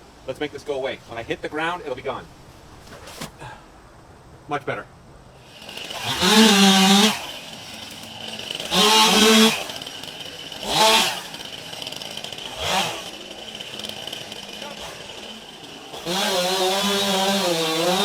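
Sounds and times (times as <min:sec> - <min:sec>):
chainsaw revving: 0:05.4 - 0:18.0.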